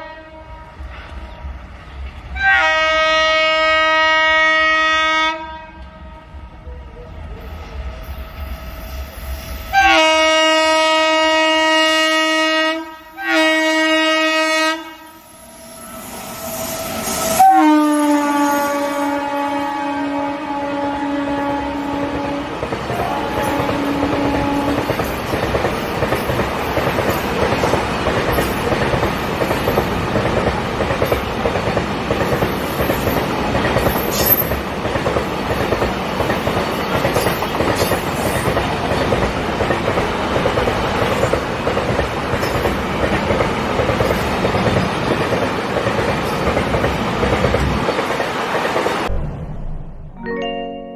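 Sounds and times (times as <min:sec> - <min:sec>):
sharp high squeak: 0:15.2 - 0:17.5
steel wheels on rails: 0:22.5 - 0:49.1.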